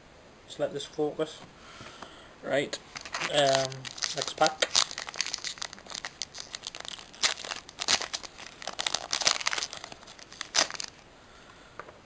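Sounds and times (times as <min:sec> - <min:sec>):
foil wrapper crinkling and tearing: 0:02.8 - 0:11.0.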